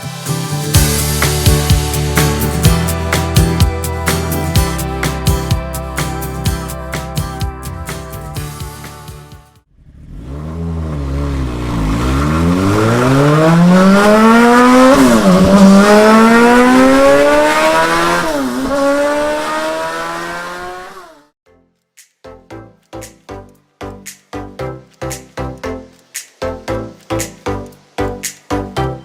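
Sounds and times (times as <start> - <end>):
engine accelerating hard: 0.0 - 21.3.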